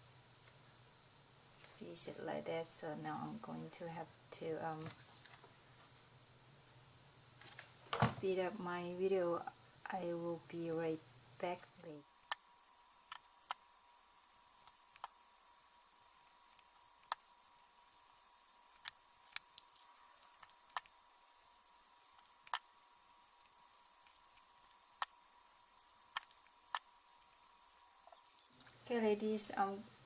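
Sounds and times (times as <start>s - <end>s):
faint steady tone: 8.2s - 30.0s.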